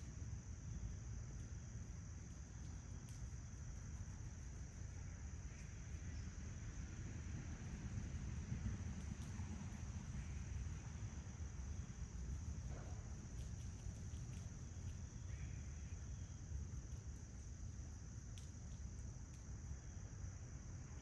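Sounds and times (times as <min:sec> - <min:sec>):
crickets trilling: 0:00.0 - 0:21.0
low rumble of wind or traffic: 0:00.0 - 0:21.0
faint ticks: 0:02.2 - 0:06.0, 0:07.8 - 0:10.9, 0:11.7 - 0:19.8.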